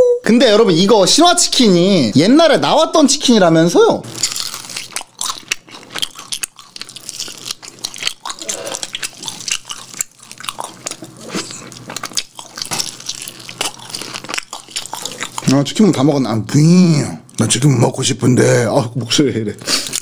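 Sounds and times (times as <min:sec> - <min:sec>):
wet mouth sounds: 0:04.0 - 0:15.6, 0:19.6 - 0:20.0
crisp crunchy chewing: 0:04.1 - 0:15.8, 0:19.6 - 0:20.0.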